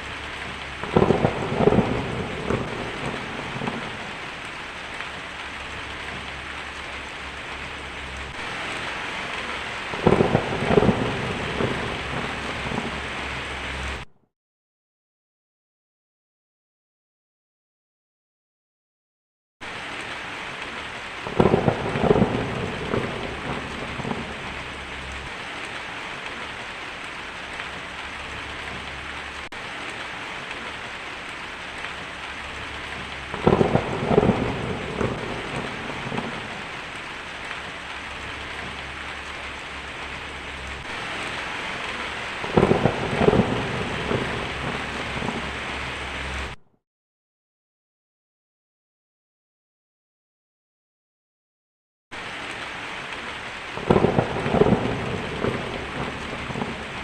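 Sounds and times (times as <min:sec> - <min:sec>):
heavy rain: 0:00.0 - 0:14.1, 0:19.6 - 0:46.6, 0:52.1 - 0:57.0
thunder cracking and rumbling: 0:00.0 - 0:14.1, 0:20.0 - 0:46.6, 0:53.8 - 0:57.0.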